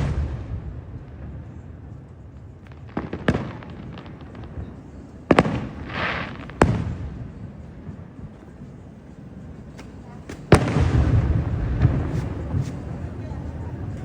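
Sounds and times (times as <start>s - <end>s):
fireworks bangs: 0.0s - 8.6s, 9.6s - 14.0s
fireworks hissing crackle: 0.0s - 14.0s.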